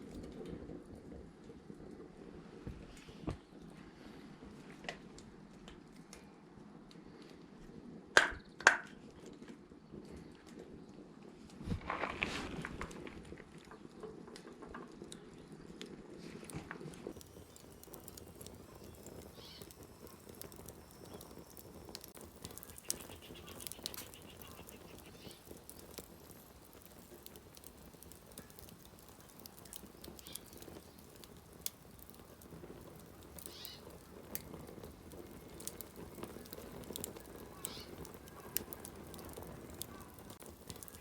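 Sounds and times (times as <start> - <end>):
campfire crackling: 0.0 - 41.0
sharp pops of fire: 16.5 - 41.0.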